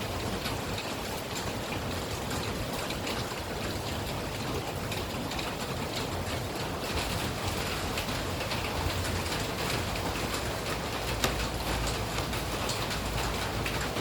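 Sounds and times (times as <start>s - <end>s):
steady rain falling: 0.0s - 14.0s
drops ticking on a surface: 4.9s - 14.0s.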